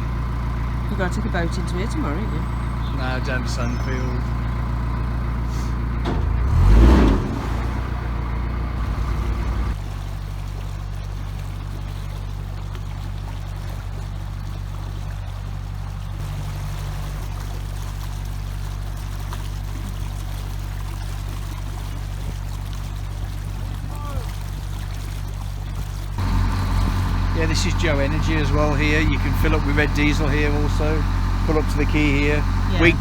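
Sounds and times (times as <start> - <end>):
boat diesel engine humming: 0.0 - 33.0.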